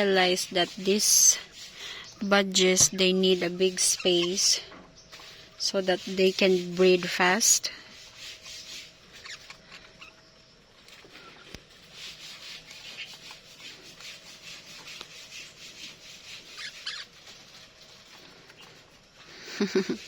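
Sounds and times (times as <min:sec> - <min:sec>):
budgerigars chattering: 0:03.3 - 0:04.6.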